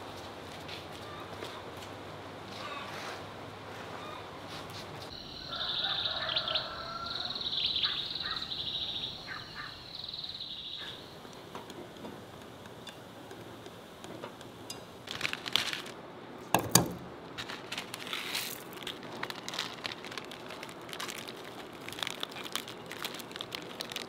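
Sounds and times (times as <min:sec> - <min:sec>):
birds chirping and trilling: 0:05.1 - 0:11.3.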